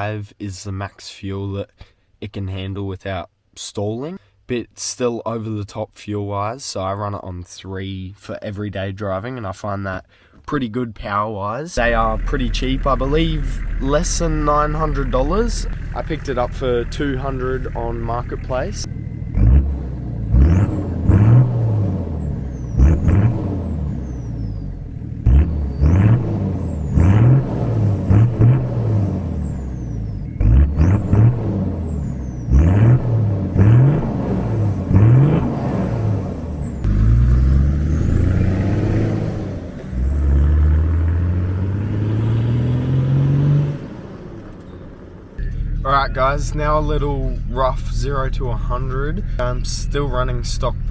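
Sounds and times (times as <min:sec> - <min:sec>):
diesel engine revving: 0:11.8 - 0:50.9.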